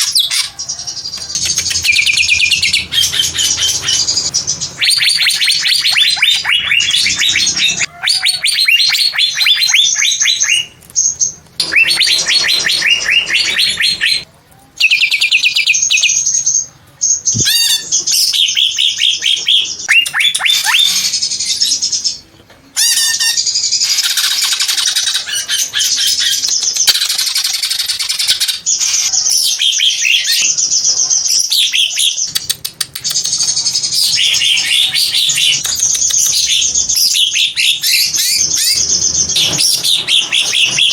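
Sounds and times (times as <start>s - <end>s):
bird singing high chirps and trills: 0.0s - 22.2s, 33.0s - 40.9s.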